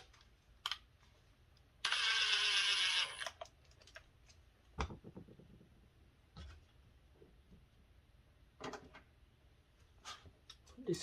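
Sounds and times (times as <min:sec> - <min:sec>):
power screwdriver running: 0:01.8 - 0:03.4.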